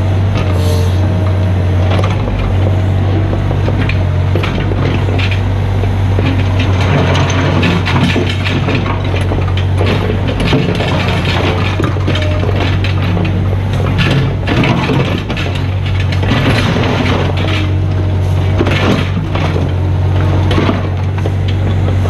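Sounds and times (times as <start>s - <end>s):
excavator diesel engine running: 0.0s - 22.0s
bucket crunching through rubble: 1.7s - 22.0s.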